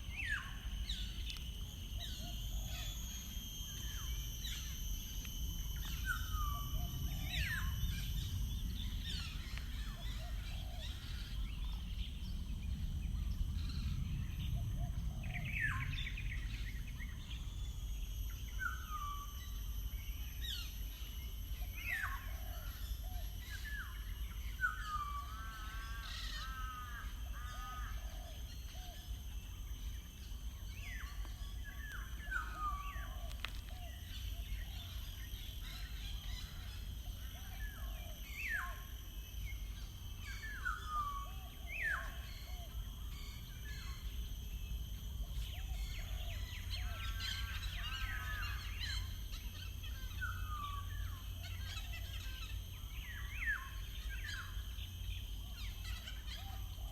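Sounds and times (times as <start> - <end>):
songbirds singing: 0.0 - 56.9.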